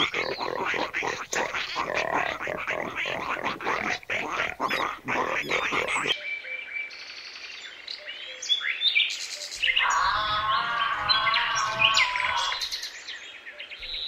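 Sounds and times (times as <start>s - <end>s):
pig grunting: 0.0s - 6.2s
birds chirping: 0.0s - 14.0s.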